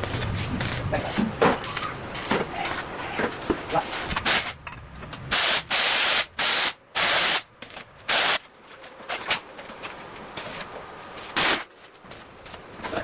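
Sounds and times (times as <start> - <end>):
compressed air hiss bursts: 5.3 - 7.5, 8.1 - 8.4.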